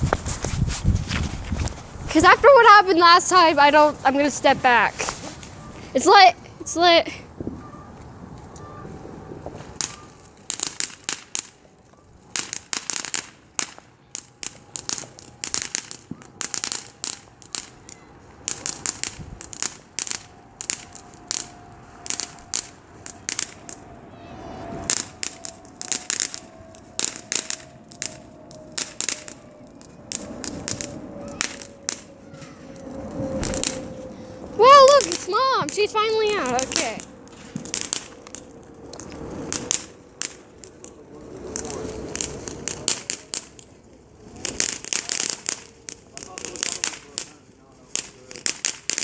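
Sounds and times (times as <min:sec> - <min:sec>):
firework cracks and pops: 0:09.4 - 0:23.9, 0:24.8 - 0:49.0.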